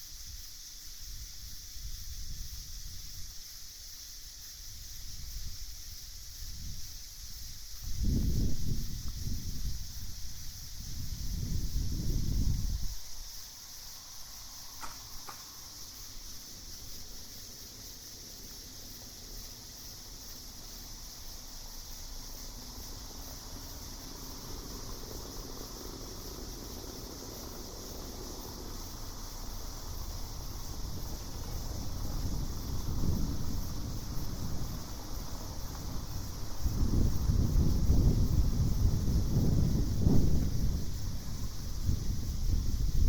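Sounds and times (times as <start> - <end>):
night insects chorus: 0.0 - 43.0
low wind rumble: 0.3 - 43.0.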